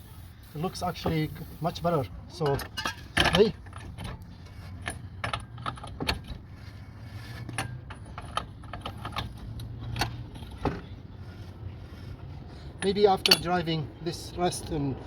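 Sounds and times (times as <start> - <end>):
metallic clicks of brake rotor: 2.3 - 6.6, 7.2 - 10.9, 12.8 - 13.7.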